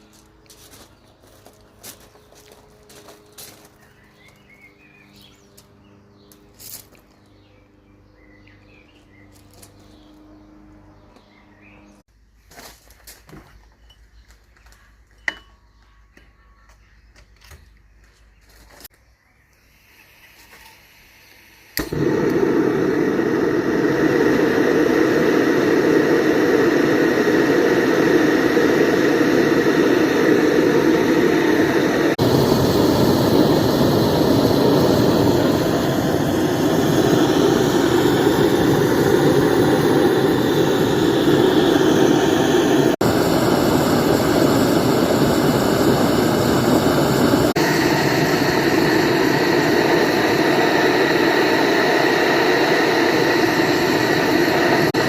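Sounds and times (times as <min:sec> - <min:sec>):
gas burner rushing: 0:19.9 - 0:55.0.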